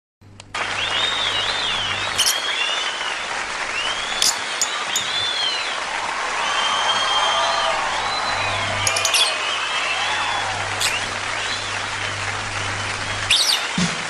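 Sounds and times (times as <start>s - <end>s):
lovebirds twittering: 0.9s - 5.8s, 6.4s - 13.8s
sharp piercing bird chirps: 1.4s - 3.0s, 3.9s - 5.7s, 8.8s - 9.6s, 10.8s - 11.1s, 13.3s - 13.8s.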